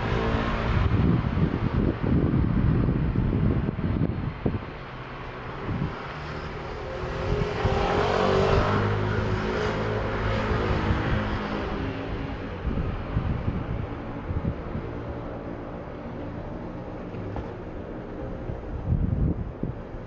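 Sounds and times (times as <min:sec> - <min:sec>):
wind buffeting microphone: 0:00.0 - 0:20.0
vehicle passing: 0:04.8 - 0:19.0.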